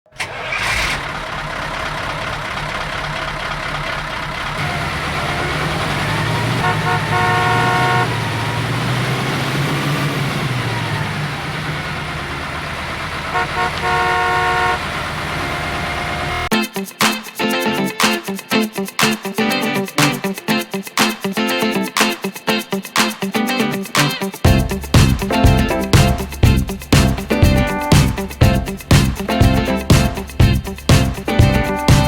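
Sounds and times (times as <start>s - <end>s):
vehicle engine and road noise: 0.2s - 16.5s
car horn toots: 4.6s - 9.2s, 11.9s - 16.5s
music: 16.5s - 32.0s.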